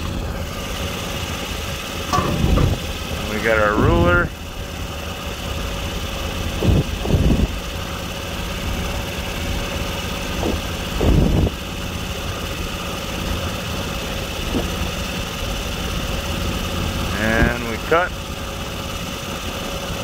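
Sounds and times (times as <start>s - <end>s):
truck engine idling: 0.0s - 20.0s
low bumps: 2.0s - 4.7s, 6.3s - 12.0s.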